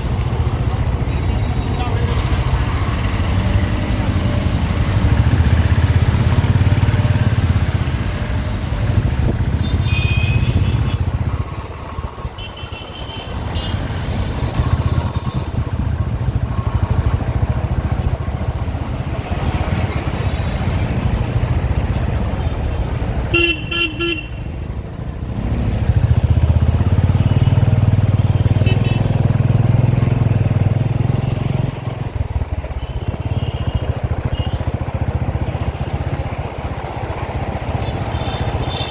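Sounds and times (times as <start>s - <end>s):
motorcycle engine and wind rumble: 0.0s - 38.9s
vehicle horns honking: 9.5s - 11.1s, 23.3s - 24.5s, 28.4s - 29.2s, 37.8s - 38.9s.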